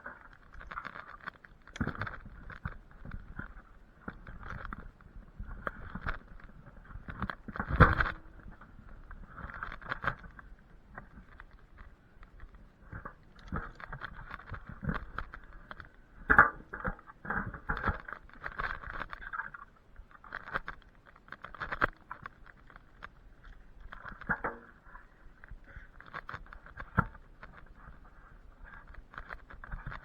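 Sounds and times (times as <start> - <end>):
rustling and crackling: 0.0 - 30.0.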